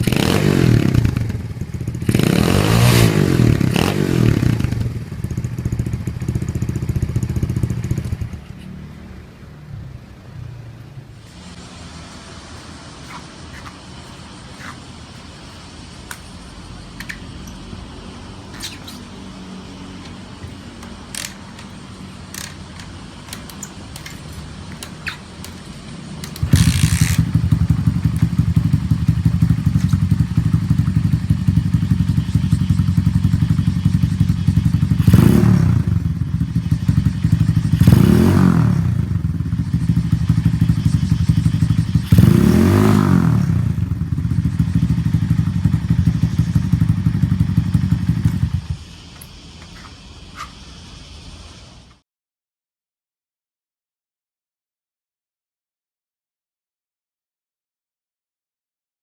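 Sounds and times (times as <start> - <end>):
motorcycle engine revving loudly: 0.0 - 8.4, 17.9 - 48.9
scattered clicks: 16.0 - 17.6, 20.0 - 28.3.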